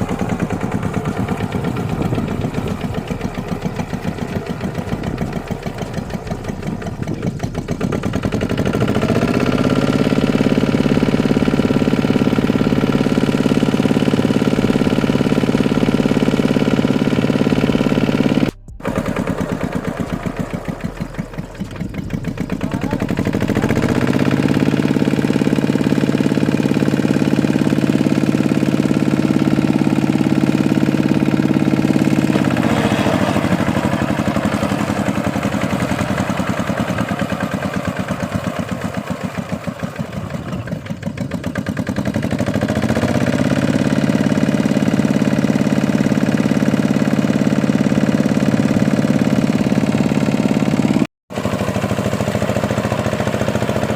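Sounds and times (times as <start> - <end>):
tractor diesel engine revving: 0.0 - 53.9.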